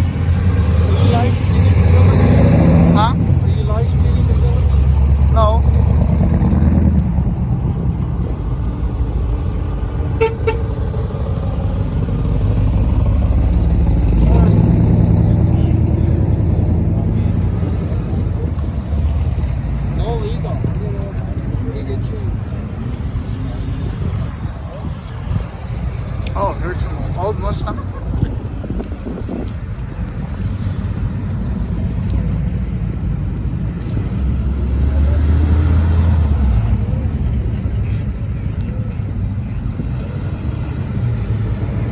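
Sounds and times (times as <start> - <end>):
engine low rumble: 0.0 - 41.9
car horn toots: 10.1 - 11.1.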